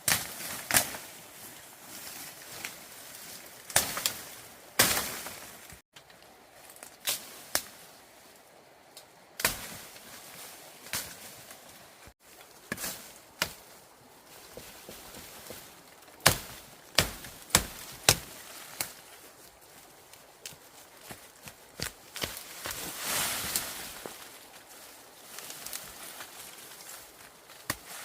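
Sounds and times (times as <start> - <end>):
blade chopping into bamboo: 16.2 - 18.9.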